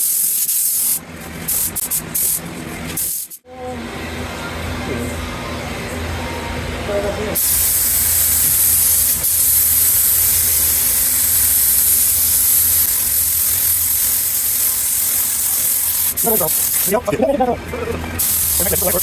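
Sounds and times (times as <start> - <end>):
paint spray hissing: 0.0 - 3.4, 7.4 - 17.1, 18.2 - 19.0.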